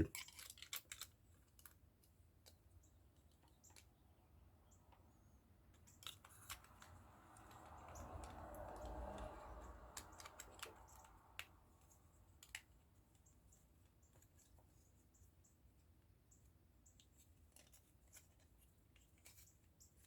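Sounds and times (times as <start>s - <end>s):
soft rustle: 6.0s - 20.0s.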